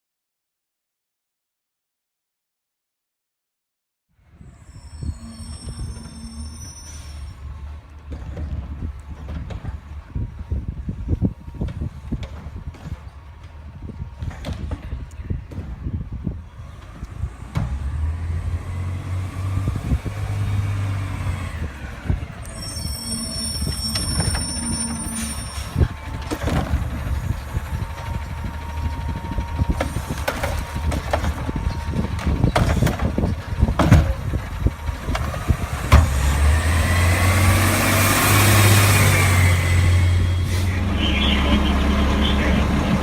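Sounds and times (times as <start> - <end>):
garbage truck engine droning: 4.2 - 43.0
high steady squeal: 4.3 - 7.7, 21.8 - 35.6
engine revving with whine: 16.5 - 43.0
sharp knocks and clanks: 29.8 - 34.3.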